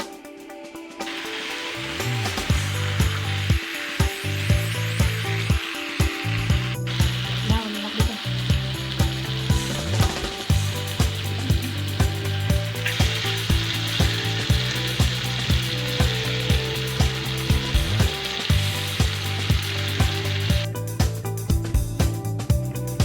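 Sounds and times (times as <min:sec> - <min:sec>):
background music with steady beat: 0:00.0 - 0:23.0
food sizzling in a pan: 0:01.0 - 0:20.7.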